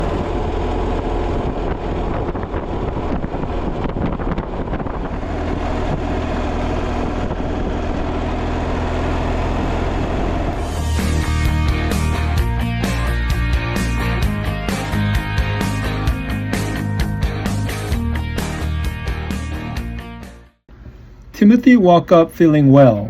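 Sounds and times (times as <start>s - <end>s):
wind noise on microphone: 0.0s - 8.9s
motorcycle engine running: 0.0s - 19.3s.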